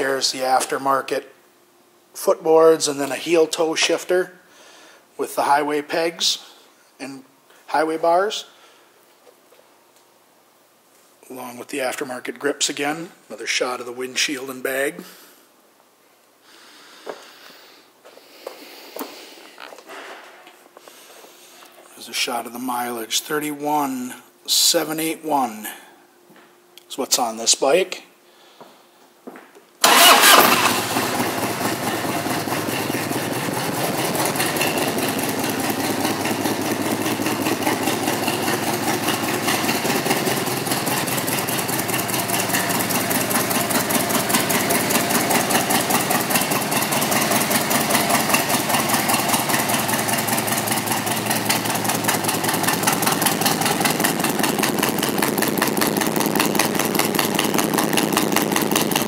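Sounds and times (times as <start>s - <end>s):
motorcycle engine starting and idling: 29.8s - 59.0s.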